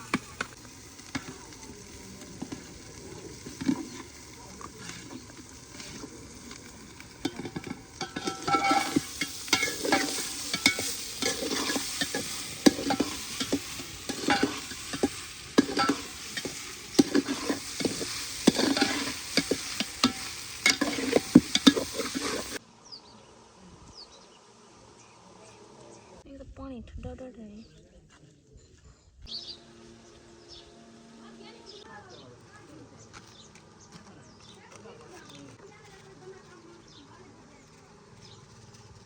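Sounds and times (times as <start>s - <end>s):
food sizzling: 0.0s - 22.6s
metal spoon scraping pot: 2.2s - 22.6s.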